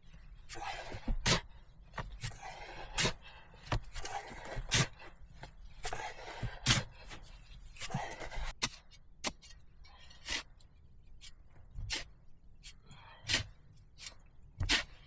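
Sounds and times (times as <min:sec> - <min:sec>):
hand tool scraping: 0:00.0 - 0:08.8, 0:13.3 - 0:15.0.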